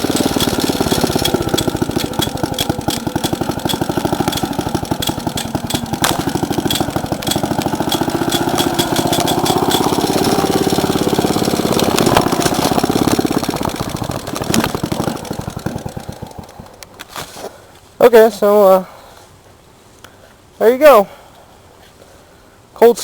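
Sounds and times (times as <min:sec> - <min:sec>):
tractor engine puttering: 0:00.0 - 0:17.2.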